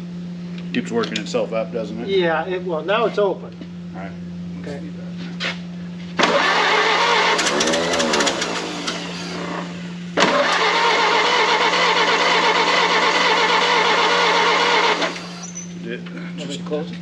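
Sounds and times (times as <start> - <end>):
starter cranking car engine: 6.2 - 15.6.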